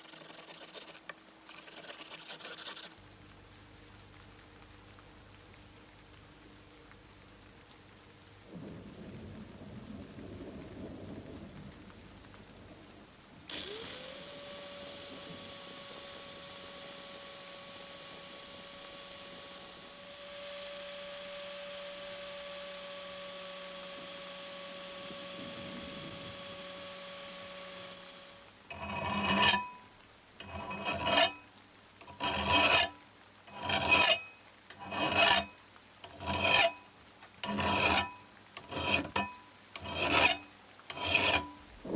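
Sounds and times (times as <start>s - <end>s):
abrasive filing strokes: 0.0s - 3.0s, 13.5s - 29.7s, 30.4s - 31.4s, 32.0s - 36.8s, 37.4s - 41.6s
small motor-driven tool humming: 0.0s - 3.0s, 13.5s - 29.6s, 30.4s - 31.4s, 32.0s - 32.9s, 33.5s - 36.7s, 37.4s - 41.5s.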